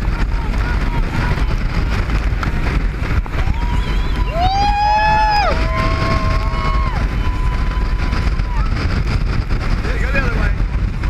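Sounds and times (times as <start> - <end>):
boat engine rumble: 0.0 - 11.0
water: 0.0 - 11.0
wind on microphone: 0.0 - 11.0
people whooping and screaming: 3.2 - 9.0.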